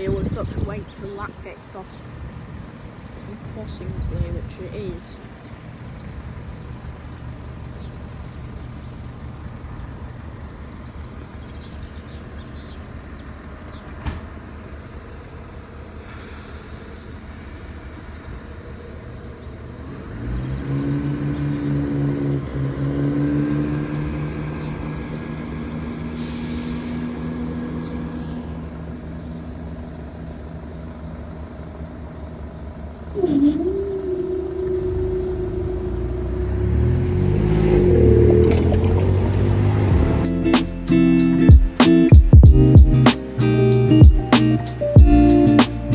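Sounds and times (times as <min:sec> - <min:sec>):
diesel locomotive engine: 0:00.0 - 0:45.9.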